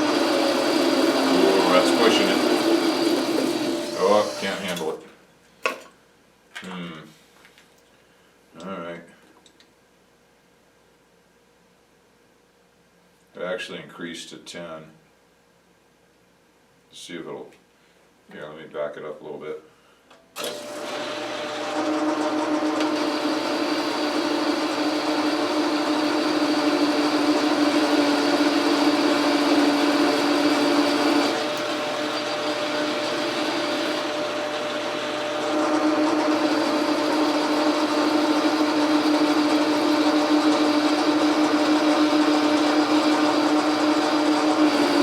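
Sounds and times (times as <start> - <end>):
metal lathe humming and whining: 0.0 - 4.9, 20.5 - 45.0.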